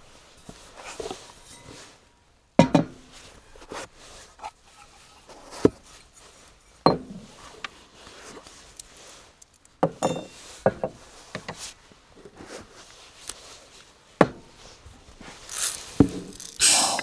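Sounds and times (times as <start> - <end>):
hard objects clinking and knocking: 9.9 - 10.4, 15.3 - 17.0
short hissing rush: 15.5 - 17.0.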